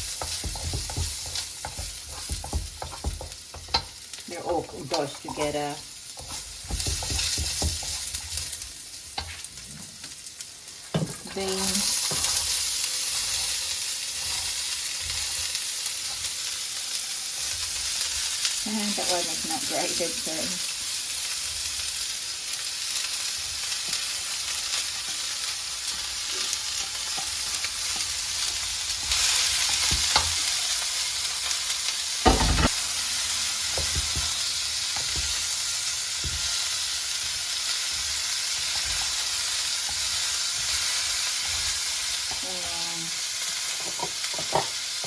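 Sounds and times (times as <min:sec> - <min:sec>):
vegetables sizzling in oil: 0:00.0 - 0:45.0
utensil knocking on pan: 0:00.2 - 0:04.0, 0:06.2 - 0:08.0.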